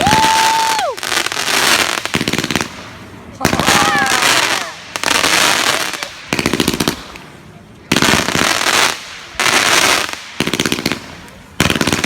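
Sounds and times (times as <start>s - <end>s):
fireworks crackling pops: 0.0s - 12.0s
fireworks hissing blasts: 0.0s - 12.0s.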